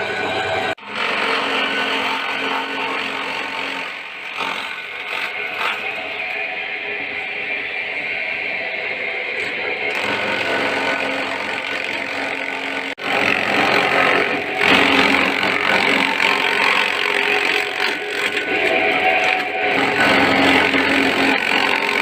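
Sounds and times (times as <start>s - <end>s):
grass-chopping machine running: 9.8s - 22.0s.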